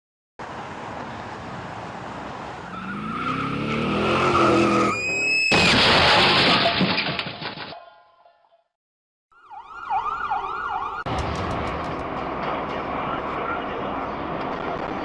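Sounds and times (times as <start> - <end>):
loud car crash: 4.4 - 7.7.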